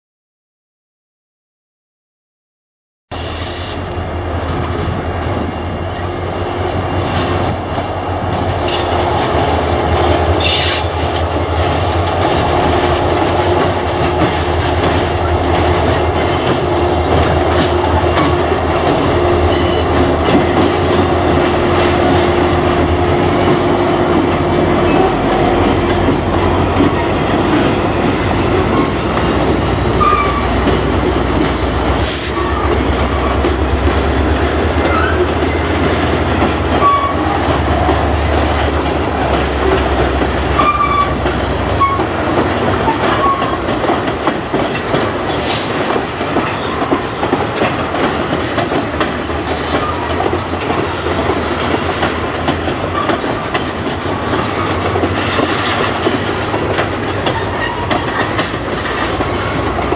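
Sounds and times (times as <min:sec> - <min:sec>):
locomotive engines droning: 0:03.6 - 0:59.9
train wheels clicking over rail joints: 0:03.8 - 0:59.9
high wheel squeal: 0:27.4 - 0:45.8, 0:57.2 - 0:59.9.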